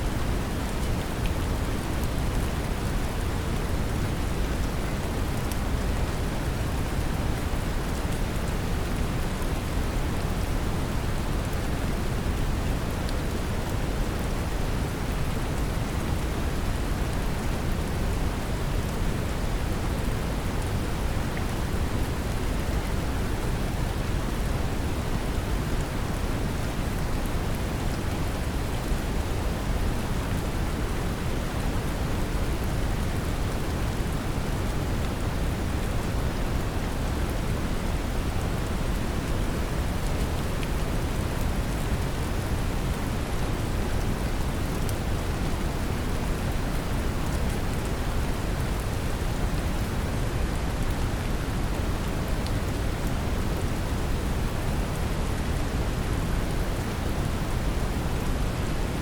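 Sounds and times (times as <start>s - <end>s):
gentle rain pattering: 0.0s - 59.0s.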